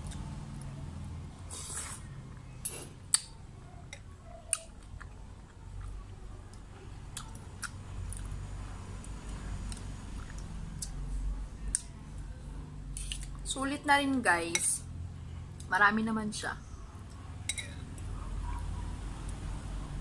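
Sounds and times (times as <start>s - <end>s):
wet chewing of noodles: 3.9s - 11.1s
metal cutlery clicks: 17.5s - 17.8s.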